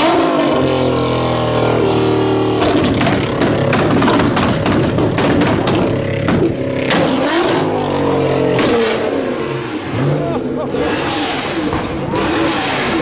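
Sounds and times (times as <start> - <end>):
car engine revving: 0.0 - 13.0
exhaust crackles and pops: 2.5 - 7.8.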